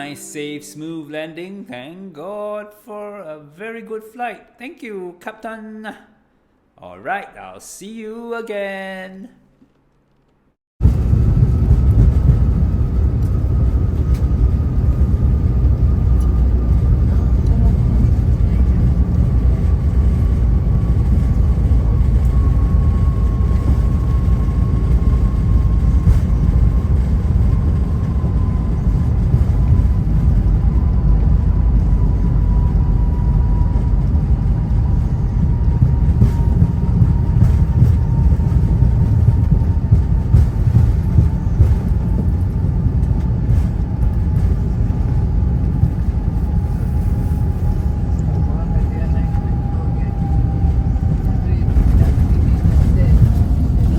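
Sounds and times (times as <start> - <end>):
aircraft cabin low rumble: 10.8 - 53.9
jet turbofan whine: 10.8 - 53.9.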